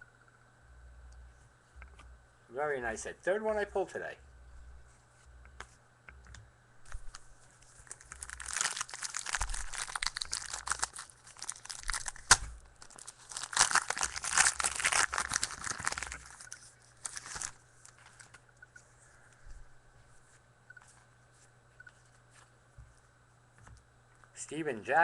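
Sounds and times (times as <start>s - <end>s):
wrapper crinkling and tearing: 6.9s - 18.4s.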